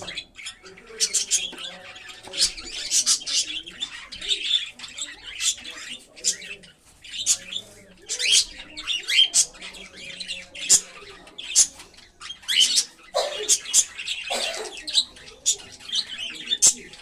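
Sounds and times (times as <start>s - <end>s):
cockatiels chirping: 0.0s - 17.0s.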